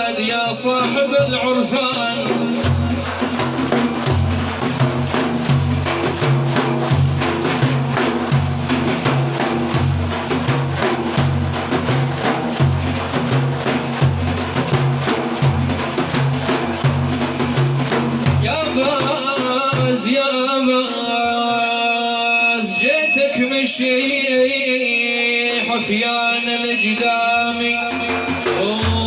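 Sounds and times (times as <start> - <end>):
drums beating fast rhythm: 0.0 - 23.3, 26.8 - 29.0.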